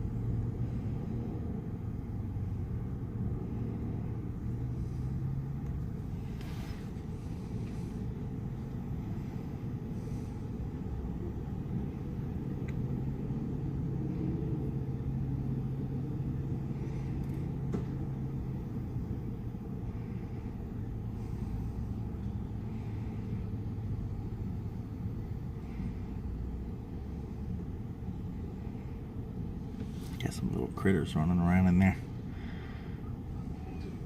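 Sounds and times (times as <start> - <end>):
low mechanical rumble: 0.0 - 34.0.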